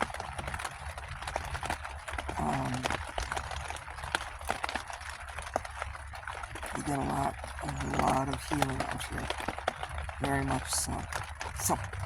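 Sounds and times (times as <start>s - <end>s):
rain tapping on a tent: 0.0s - 12.0s
steady low rumble: 10.0s - 12.0s.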